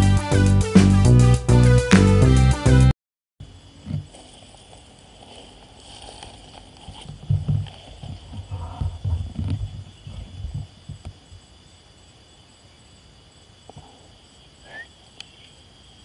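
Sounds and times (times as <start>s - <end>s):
handling bumps and rumbles: 3.6s - 11.5s.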